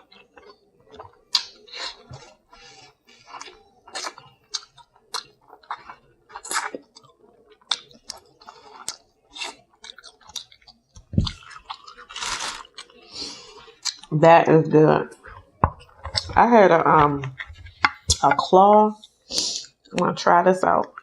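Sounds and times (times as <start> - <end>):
chewing and lip-smacking: 0.0 - 14.1, 15.1 - 16.4.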